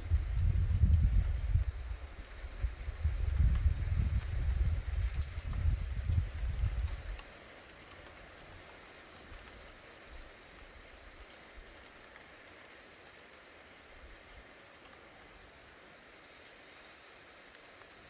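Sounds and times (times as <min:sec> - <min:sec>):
rain hissing: 0:00.0 - 0:18.0.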